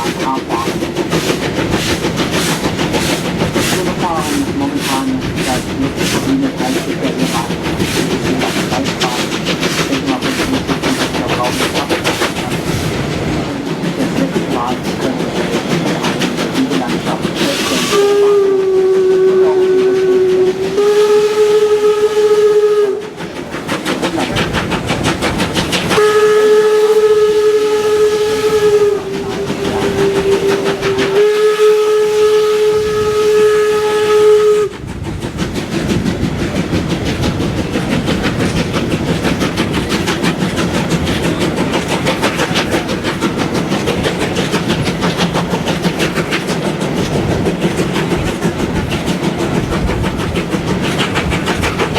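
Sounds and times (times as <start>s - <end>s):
rhythmic train running noise: 0.0s - 51.9s
steam whistle blasts: 17.4s - 23.2s, 25.9s - 34.7s.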